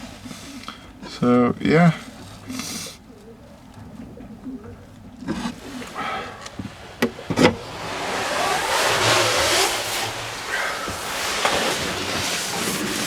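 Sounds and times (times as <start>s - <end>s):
doves cooing: 0.0s - 13.0s
rushing noise: 5.6s - 13.0s.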